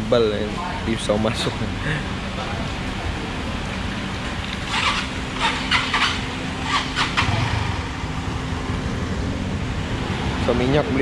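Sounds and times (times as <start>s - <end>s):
motorcycle engine running: 4.4s - 11.0s.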